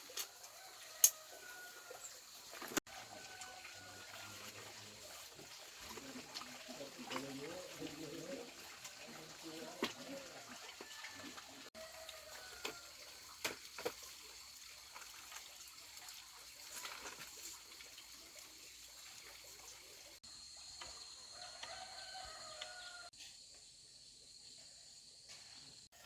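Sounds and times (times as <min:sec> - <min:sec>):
rooster crowing: 0:00.3 - 0:02.1, 0:02.9 - 0:04.4, 0:10.6 - 0:13.0, 0:21.2 - 0:23.2.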